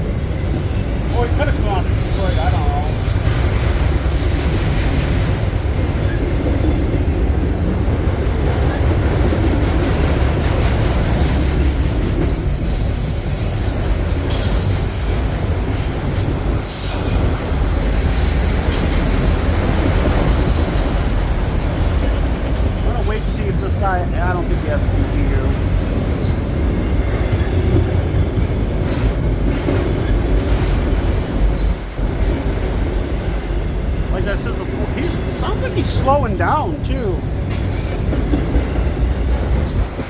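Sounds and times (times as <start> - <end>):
freight train rumbling past: 0.0 - 40.0.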